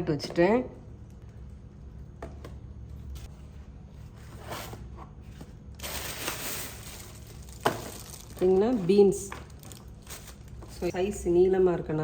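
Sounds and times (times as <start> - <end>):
steady low hum: 0.0 - 12.0
vegetables and containers handled: 4.0 - 11.2.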